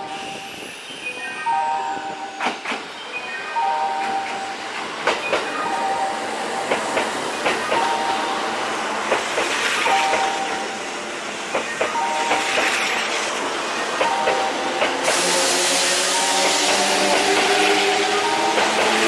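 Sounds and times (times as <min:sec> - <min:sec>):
train rumble and hiss: 0:00.0 - 0:19.0.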